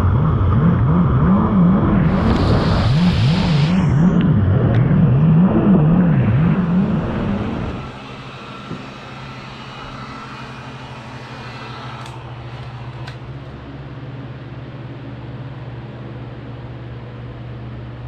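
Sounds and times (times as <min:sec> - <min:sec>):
jet ski engine revving: 0:00.0 - 0:13.4.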